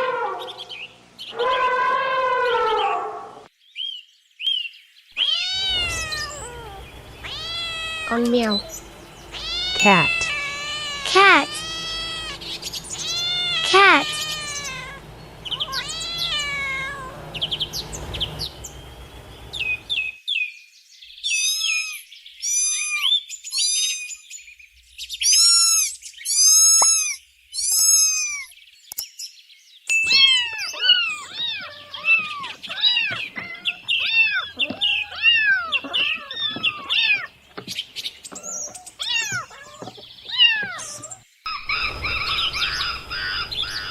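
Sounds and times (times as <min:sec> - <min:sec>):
cats meowing: 0:05.2 - 0:20.0, 0:30.0 - 0:37.3, 0:38.4 - 0:43.9.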